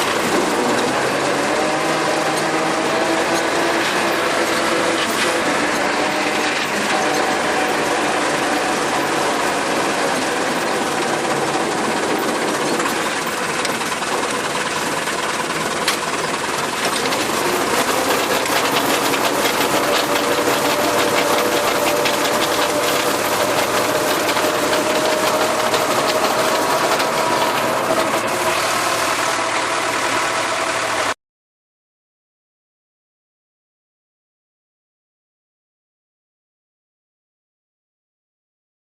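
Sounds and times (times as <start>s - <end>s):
rotary tiller rattling: 0.0s - 31.1s
tractor engine running: 0.0s - 31.2s.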